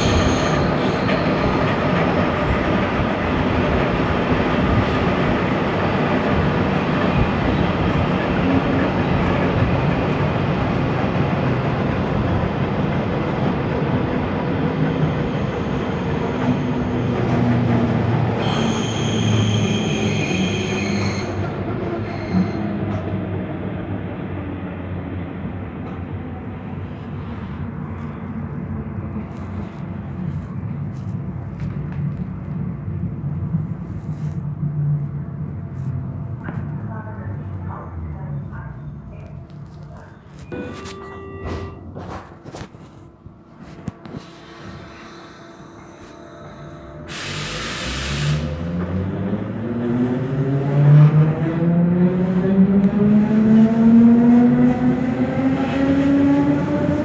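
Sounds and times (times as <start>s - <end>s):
high squeal of train: 0.0s - 3.8s, 13.4s - 23.5s, 36.8s - 49.0s
train wheels rumbling on rails: 0.0s - 57.0s.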